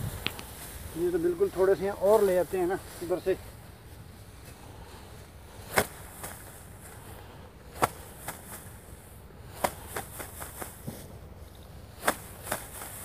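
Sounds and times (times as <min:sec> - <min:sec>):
rice sheaves beaten by hand: 0:05.5 - 0:07.0, 0:07.6 - 0:08.9, 0:09.5 - 0:11.1, 0:11.9 - 0:13.0.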